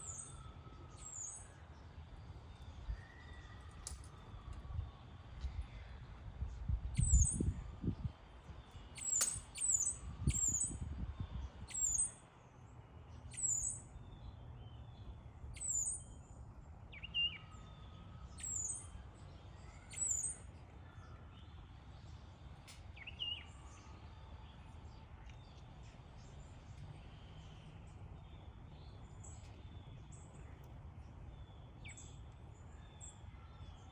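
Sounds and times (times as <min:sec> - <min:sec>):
sparrow chirping: 0:00.0 - 0:01.6, 0:07.0 - 0:07.5, 0:08.7 - 0:10.8, 0:11.6 - 0:12.2, 0:13.3 - 0:21.6.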